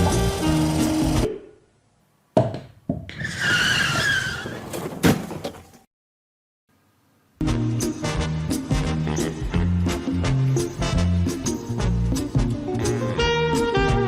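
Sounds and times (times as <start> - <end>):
tyre screech: 3.1 - 4.9.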